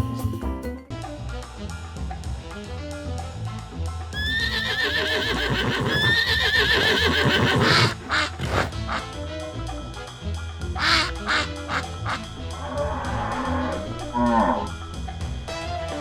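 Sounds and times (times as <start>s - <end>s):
background music: 0.0s - 16.0s
horse whinnying: 4.2s - 9.1s, 10.8s - 15.0s.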